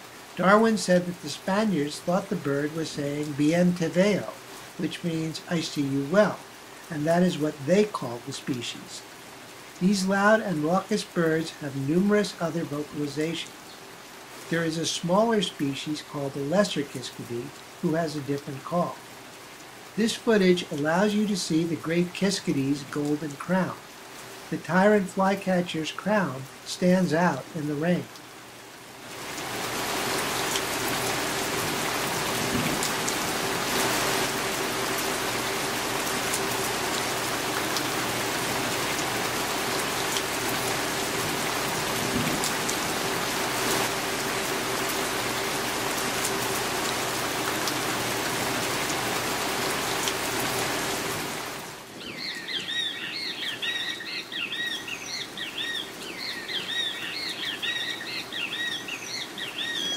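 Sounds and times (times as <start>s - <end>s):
steady rain falling: 0.0s - 59.9s
bird calling in high notes: 52.0s - 59.9s.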